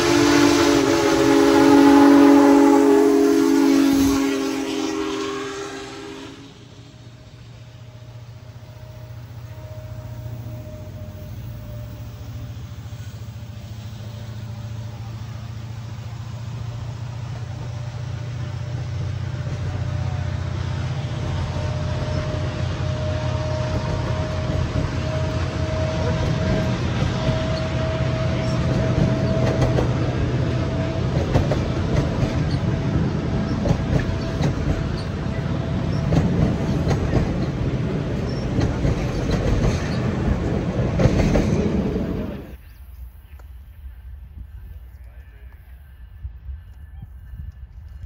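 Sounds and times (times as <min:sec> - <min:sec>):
train rumble: 0:00.0 - 0:48.0
train wheels clicking: 0:11.1 - 0:42.6.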